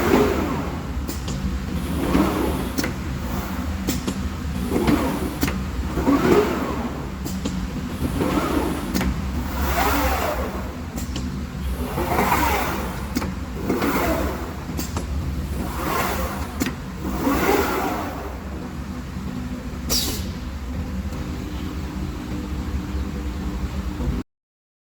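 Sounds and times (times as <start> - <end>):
motors whining up and down: 0.0 - 21.4
low machine hum: 0.0 - 24.2
sharp click: 19.9 - 20.4.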